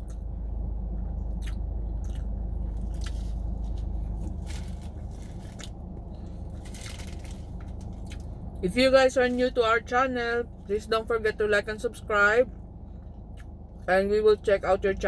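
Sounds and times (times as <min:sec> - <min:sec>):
low rumble: 0:00.0 - 0:15.0
biting and chewing: 0:00.9 - 0:08.5.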